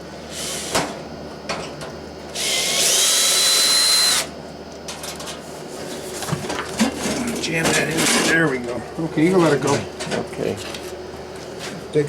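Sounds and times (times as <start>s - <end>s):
cordless drill whirring: 2.4s - 4.3s.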